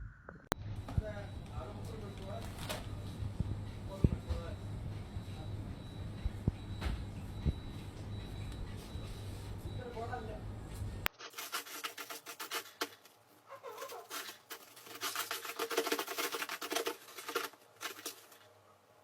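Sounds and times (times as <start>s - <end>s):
rapid scratching and rubbing: 11.2s - 18.4s.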